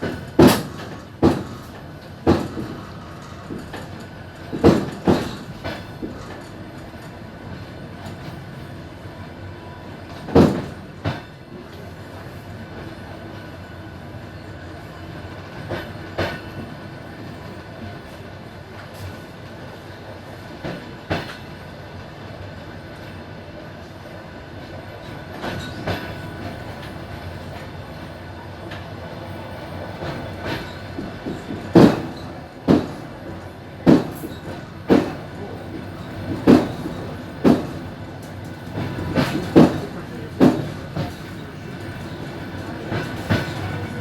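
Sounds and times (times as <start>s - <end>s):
wheels clacking over rail joints: 0.0s - 8.4s, 29.8s - 44.0s
train rumbling on rails: 0.0s - 44.0s.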